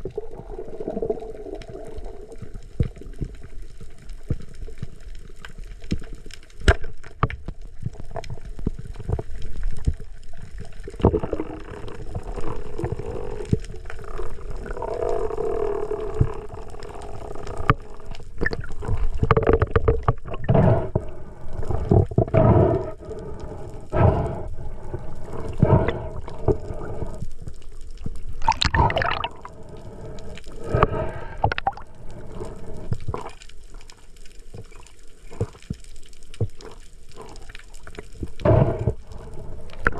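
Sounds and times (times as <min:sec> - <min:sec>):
bubbling water: 0:00.0 - 0:03.5, 0:07.8 - 0:39.9
sea water sloshing: 0:28.3 - 0:35.8.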